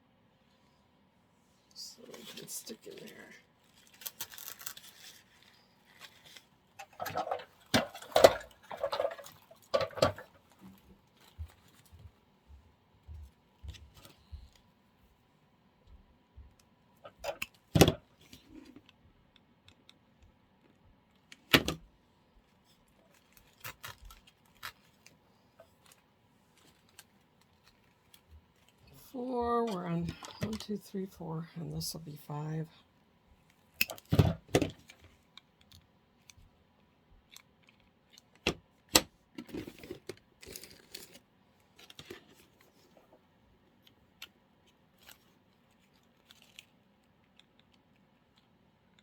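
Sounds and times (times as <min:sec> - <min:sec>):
artificial flowers rustling: 0:01.8 - 0:12.2.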